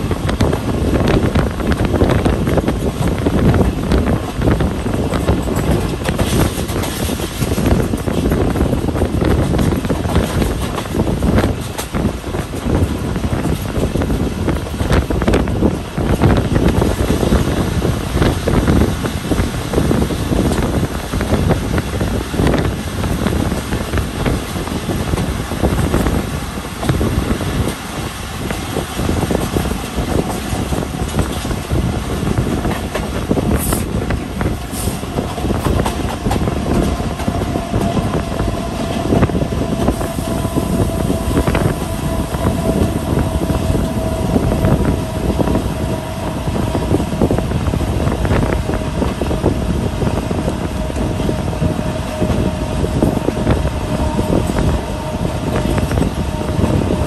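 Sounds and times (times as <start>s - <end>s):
train rumbling: 0.0s - 57.0s
steady whine: 21.4s - 57.0s.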